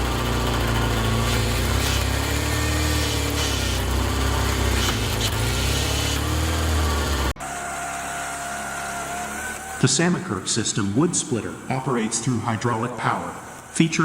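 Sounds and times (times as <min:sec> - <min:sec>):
small engine running: 0:00.0 - 0:10.1.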